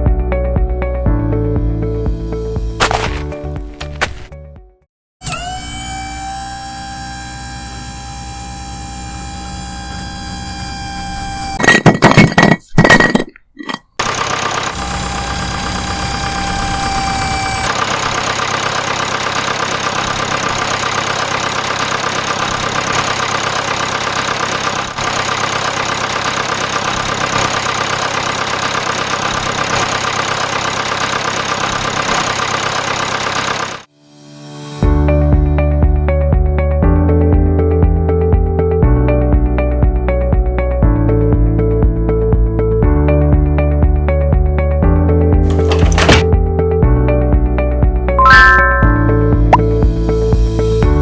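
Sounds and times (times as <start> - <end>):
small engine running: 5.2 - 11.6, 14.0 - 33.9.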